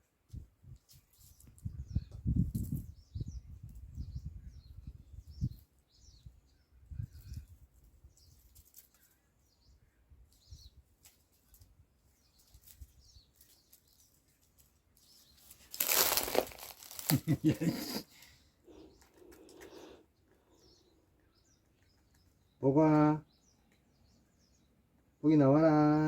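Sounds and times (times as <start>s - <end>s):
faint bird chirps: 0.9s - 16.4s, 18.1s - 25.8s
loud rustling and scraping: 12.2s - 17.5s.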